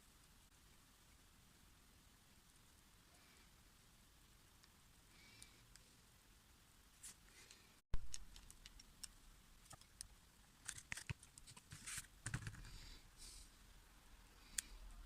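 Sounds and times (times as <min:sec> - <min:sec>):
low steady hum: 0:00.0 - 0:15.0
small parts and tools clicking: 0:07.5 - 0:12.8.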